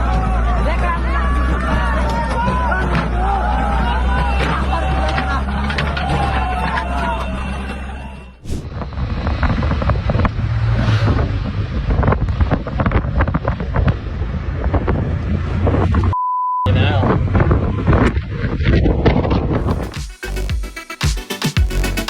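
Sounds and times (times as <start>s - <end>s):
excited voices: 0.0s - 8.4s
vehicle rumble: 0.0s - 20.5s
wind buffeting microphone: 8.4s - 16.1s, 16.8s - 19.7s
censor bleep tone: 16.1s - 16.8s.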